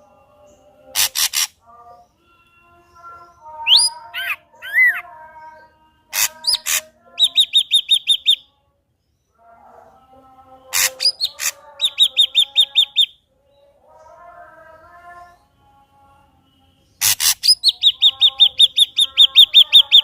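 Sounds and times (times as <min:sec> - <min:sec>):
bird singing: 0:00.0 - 0:20.0.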